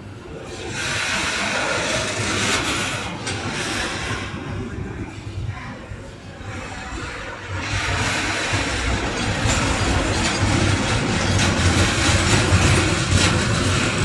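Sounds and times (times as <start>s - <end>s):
train passing with low rumble: 0.0s - 14.0s
train wheels clacking over rail joints: 7.5s - 14.0s.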